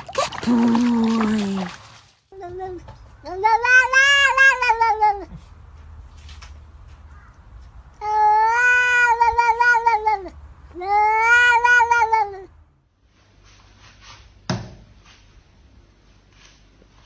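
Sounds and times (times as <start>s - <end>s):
cat meowing: 8.2s - 10.2s, 10.8s - 12.4s
thump: 14.5s - 14.9s.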